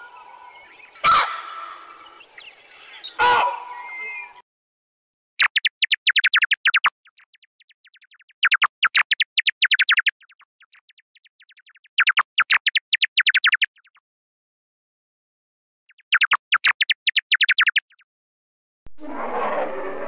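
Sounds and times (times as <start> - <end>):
bat chirping calls: 0.1 - 4.4.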